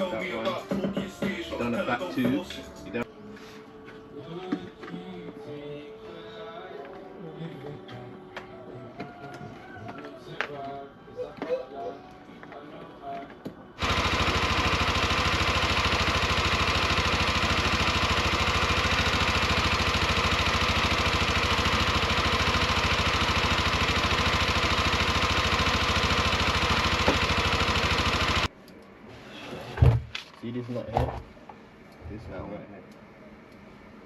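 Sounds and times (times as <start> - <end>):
scooter engine idling: 13.8 - 28.5.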